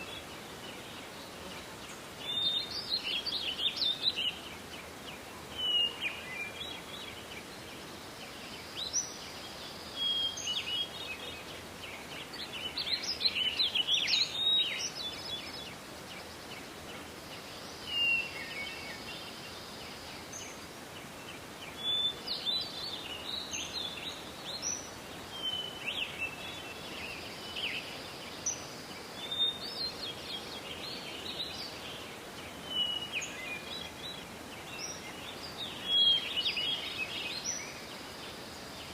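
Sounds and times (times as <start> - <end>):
forest background hiss: 0.0 - 38.9
songbirds chirping and trilling: 0.0 - 38.9.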